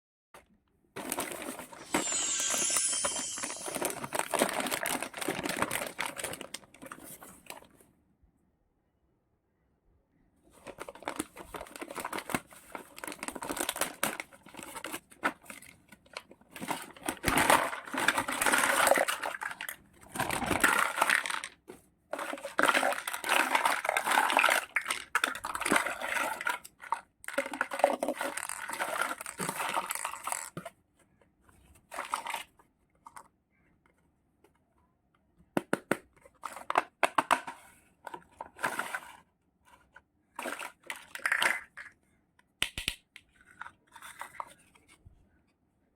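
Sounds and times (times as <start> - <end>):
packaging crinkling and tearing: 1.0 - 7.7.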